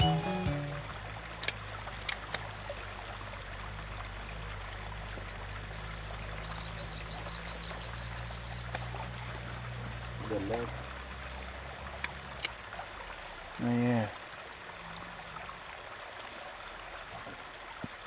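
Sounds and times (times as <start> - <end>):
vehicle engine idling: 0.0 - 13.6
bird chirping: 6.4 - 9.0.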